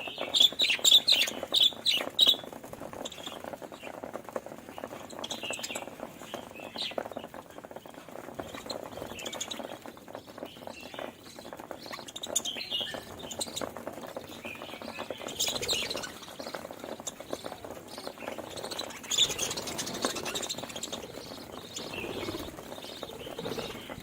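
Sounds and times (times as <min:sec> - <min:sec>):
budgerigars chirping and warbling: 0:00.1 - 0:02.4, 0:10.4 - 0:24.0.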